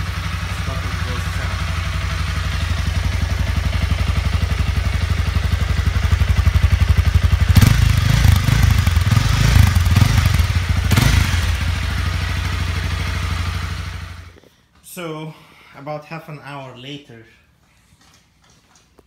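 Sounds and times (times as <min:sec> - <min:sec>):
motorcycle engine idling and revving: 0:00.0 - 0:14.4.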